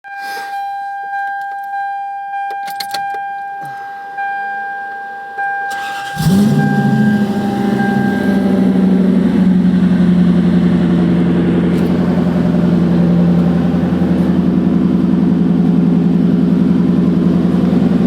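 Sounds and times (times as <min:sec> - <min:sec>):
keys rattling in ignition: 0:02.5 - 0:03.9, 0:05.7 - 0:08.1
electronic warning tone: 0:03.2 - 0:09.8
starter motor cranking: 0:05.7 - 0:08.4
car engine idling loudly: 0:05.7 - 0:18.0.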